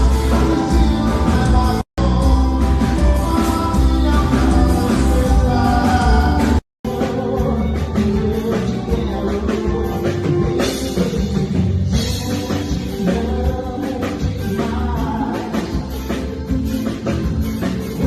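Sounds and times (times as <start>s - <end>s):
person singing: 0.0s - 16.4s
drum kit: 0.0s - 18.0s
live band music: 0.0s - 18.0s.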